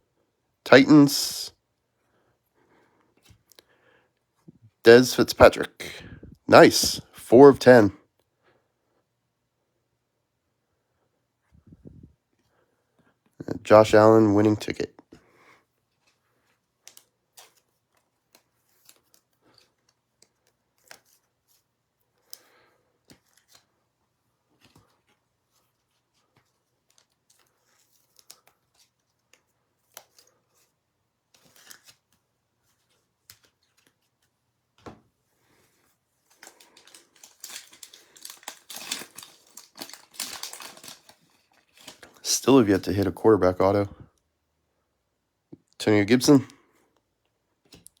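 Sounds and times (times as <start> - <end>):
trading cards handled: 15.9 - 23.8, 24.4 - 42.8
pack wrapper crinkling: 36.2 - 42.3.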